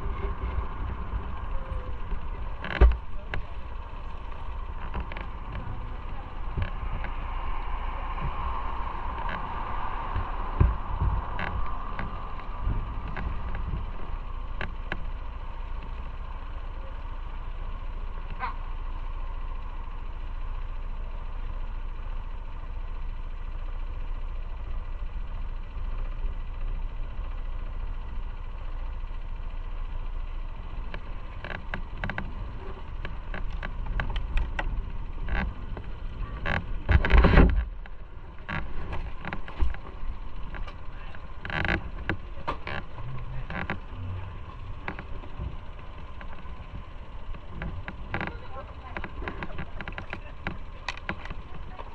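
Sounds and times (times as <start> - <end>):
motorcycle engine rumble: 0.0 - 51.9
wind on microphone: 4.8 - 14.2.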